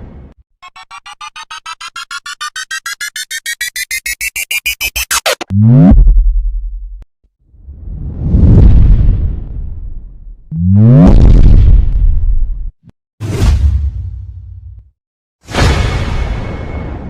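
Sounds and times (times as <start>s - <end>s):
electronic beeps rising in pitch: 0.6s - 5.8s
electronic zap: 0.7s - 5.5s.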